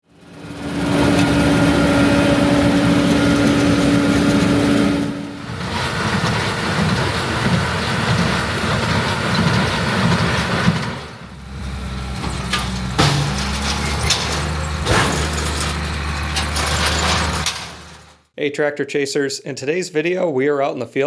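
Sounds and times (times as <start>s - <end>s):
farm machinery diesel engines: 0.0s - 18.3s
machine low hum: 0.1s - 8.3s.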